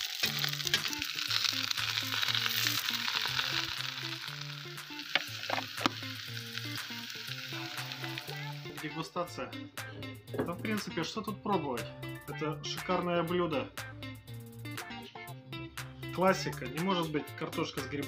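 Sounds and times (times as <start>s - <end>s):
potatoes sizzling in a pan: 0.0s - 9.0s
quiet background music: 0.0s - 18.0s.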